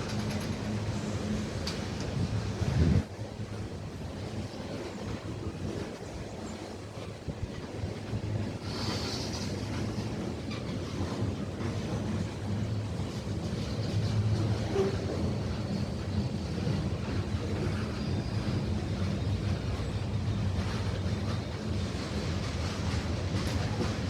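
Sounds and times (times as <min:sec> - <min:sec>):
train rumbling along track: 0:00.0 - 0:24.0
wind on microphone: 0:01.6 - 0:10.2.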